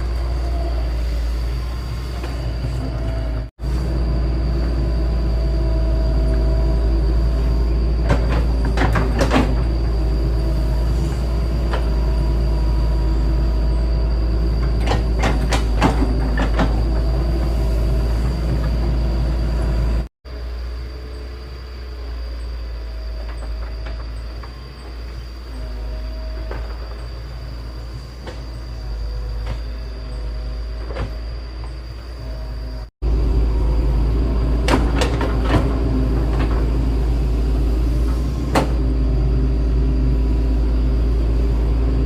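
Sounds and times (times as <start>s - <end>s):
metallic clanks and squeals: 0.0s - 20.1s, 22.4s - 32.9s
excavator diesel engine rumble: 0.0s - 42.0s.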